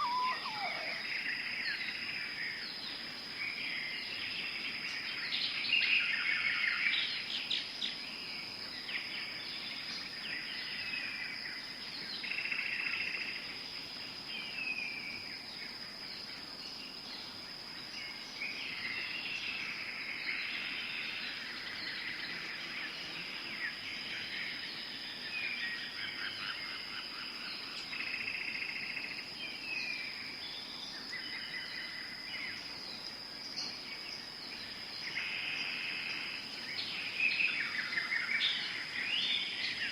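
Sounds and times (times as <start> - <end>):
high-pitched insect drone: 0.0 - 1.9
bird calls and chirps: 0.0 - 13.2.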